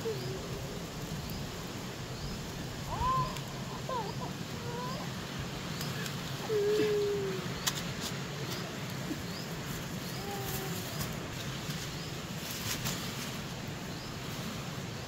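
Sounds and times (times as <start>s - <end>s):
birds chirping: 0.0s - 12.4s
sharp snaps: 7.5s - 8.7s.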